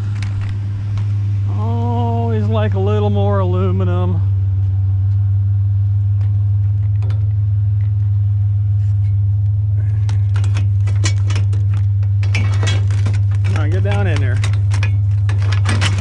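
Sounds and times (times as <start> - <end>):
low steady hum: 0.0 - 16.0
scrap metal clattering: 9.8 - 16.0.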